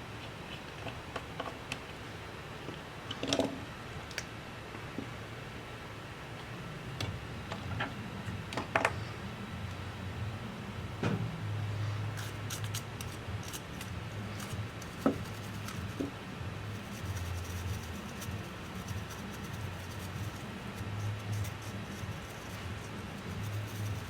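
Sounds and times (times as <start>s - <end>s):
steady low hum: 3.6s - 24.0s
hand tools clicking and scratching: 12.2s - 16.1s.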